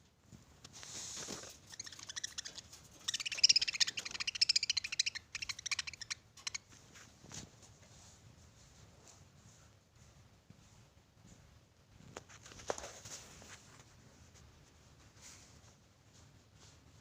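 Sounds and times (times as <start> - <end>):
budgerigars chirping and chattering: 1.6 - 6.7.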